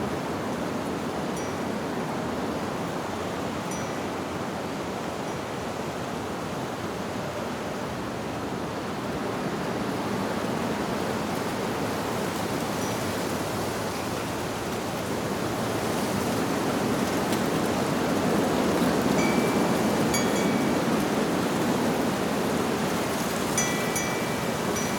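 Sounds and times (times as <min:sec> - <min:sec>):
wind rustling through leaves: 0:00.0 - 0:24.9
faint wind chimes tinkling: 0:01.2 - 0:05.7, 0:12.7 - 0:14.7, 0:18.6 - 0:24.9.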